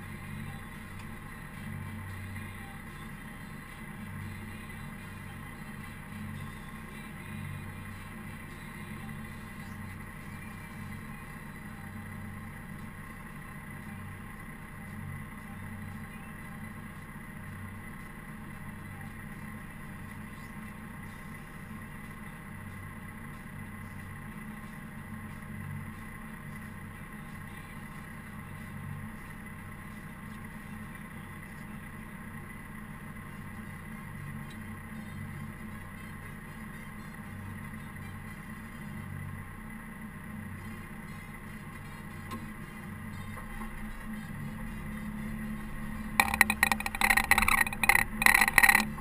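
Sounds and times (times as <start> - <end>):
diesel engine hum: 0.0 - 49.0
high whine: 33.2 - 49.0.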